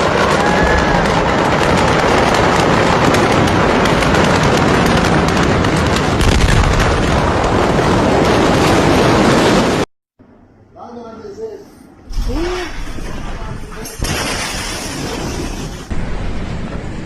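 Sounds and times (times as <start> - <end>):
fireworks crackling and popping: 0.0 - 9.9
fire rumbling: 0.0 - 10.6, 11.9 - 17.0.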